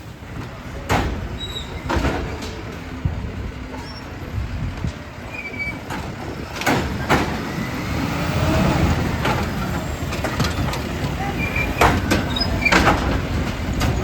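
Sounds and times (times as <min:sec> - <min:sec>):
garbage truck engine rumbling: 0:00.0 - 0:14.0.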